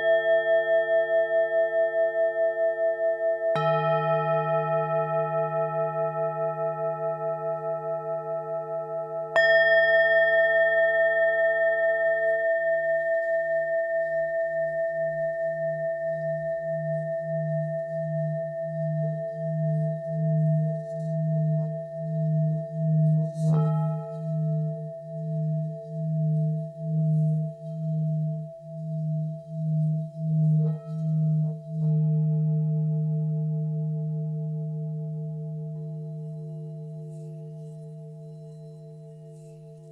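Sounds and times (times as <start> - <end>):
singing bowls ringing: 0.0 - 39.9
singing bowl struck: 3.5 - 15.2.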